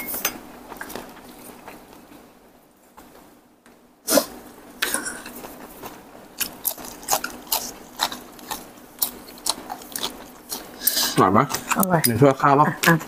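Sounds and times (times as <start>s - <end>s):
bones crunching while chewing: 5.2s - 12.0s.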